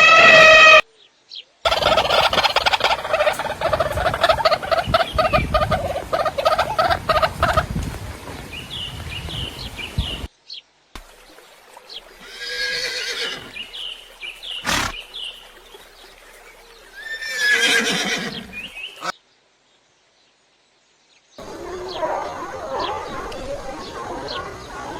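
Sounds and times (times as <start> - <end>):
horse whinnying: 0.0 - 0.8, 12.2 - 13.5, 14.6 - 15.0, 17.0 - 19.1.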